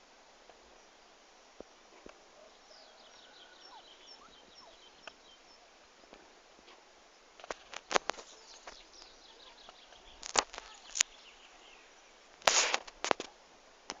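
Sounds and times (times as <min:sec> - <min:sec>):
small birds chirping: 0:00.6 - 0:14.0
rustling: 0:05.8 - 0:14.0.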